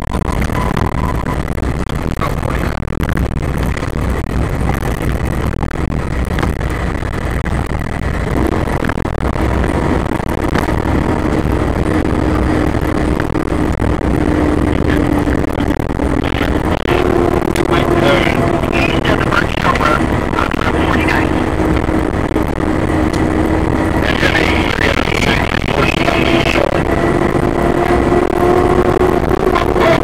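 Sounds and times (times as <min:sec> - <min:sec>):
engine and road rumble: 0:00.0 - 0:30.0
engine drone: 0:00.0 - 0:30.0.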